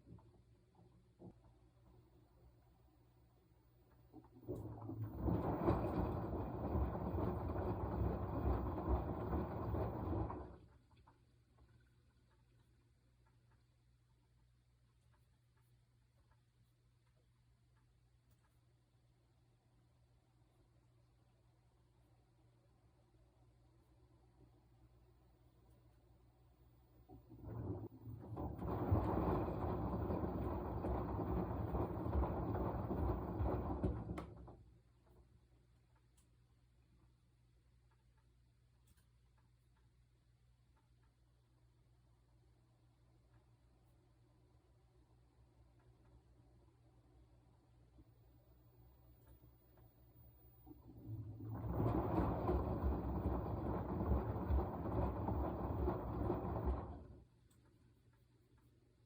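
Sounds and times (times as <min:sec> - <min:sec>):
faint low hum: 0:00.0 - 0:59.0
washing machine drum churning: 0:04.1 - 0:10.9, 0:27.0 - 0:34.8, 0:49.2 - 0:57.4.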